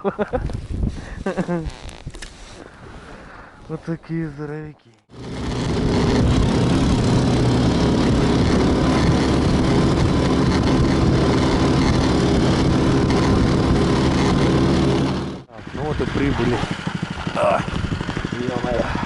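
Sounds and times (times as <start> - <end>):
vehicle engine running: 5.1 - 19.0.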